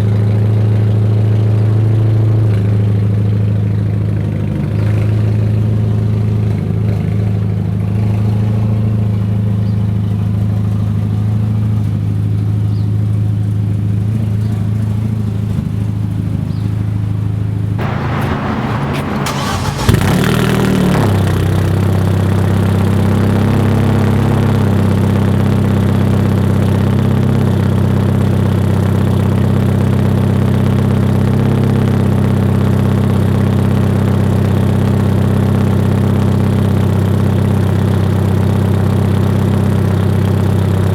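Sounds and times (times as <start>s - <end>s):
car engine idling: 8.8s - 40.9s.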